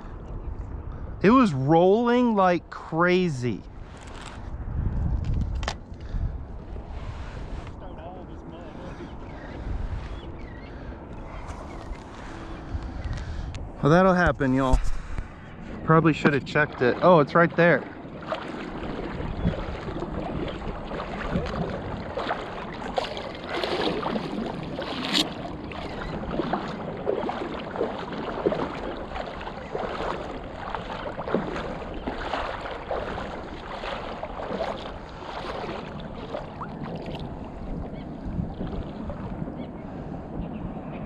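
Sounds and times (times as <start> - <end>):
wind buffeting microphone: 0.0 - 2.8, 3.5 - 41.0
shallow water sloshing and splashing: 14.5 - 40.6.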